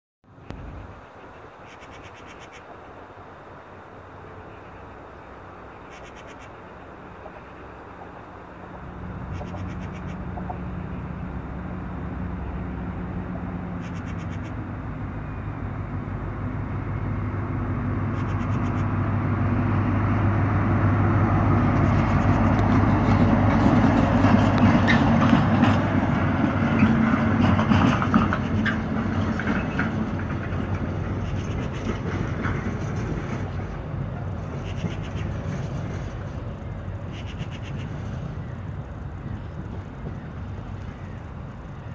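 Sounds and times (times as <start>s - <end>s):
low engine hum: 0.2s - 41.9s
train wheel rumble and clatter: 5.3s - 41.9s.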